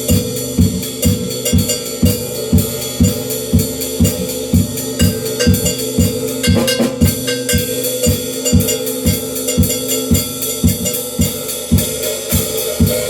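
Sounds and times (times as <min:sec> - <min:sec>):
drum kit playing steady beat: 0:00.0 - 0:13.0.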